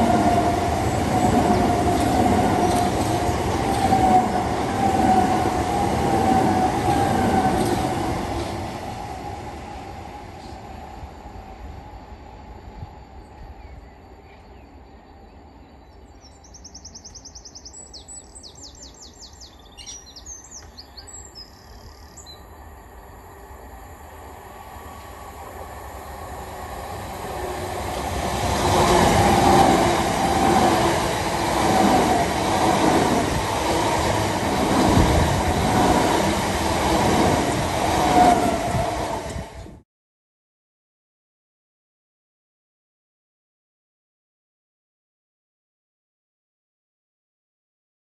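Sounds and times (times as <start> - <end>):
train wheels rumbling on rails: 0.0 - 14.6, 22.5 - 39.8
bird singing: 13.2 - 22.6.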